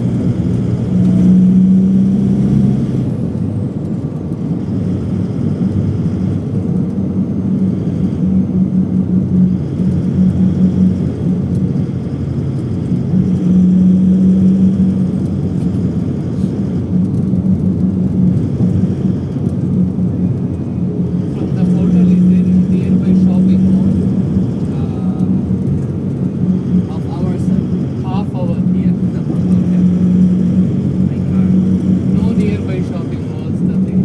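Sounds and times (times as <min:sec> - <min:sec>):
low hum: 0:00.0 - 0:34.0
vehicle engine rumbling: 0:00.0 - 0:34.0.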